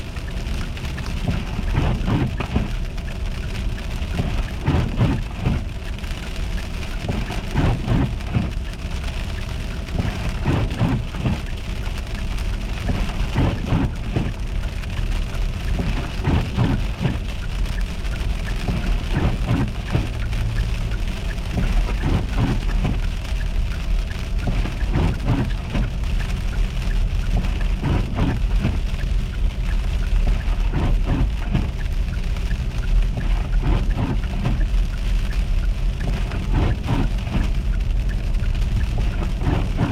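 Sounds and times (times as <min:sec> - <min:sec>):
car road noise rumble: 0:00.0 - 0:39.9
ice ticking and spattering: 0:00.0 - 0:39.9.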